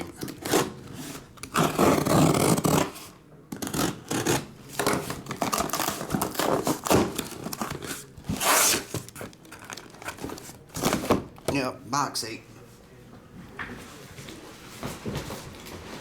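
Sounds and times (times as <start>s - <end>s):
cardboard and plastic wrap rustling: 4.7s - 11.6s, 13.9s - 16.0s.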